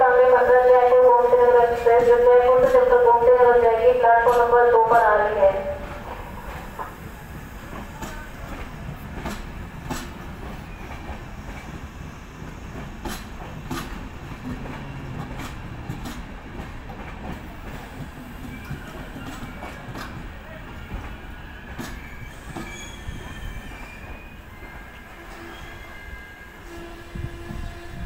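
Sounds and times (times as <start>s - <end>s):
train rumbling: 0.0s - 28.0s
wheels clacking over rail joints: 12.8s - 20.3s.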